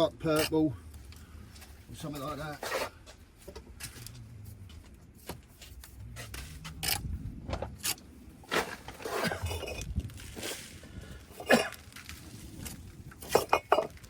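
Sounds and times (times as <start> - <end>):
bricks knocking and scraping: 4.8 - 14.0.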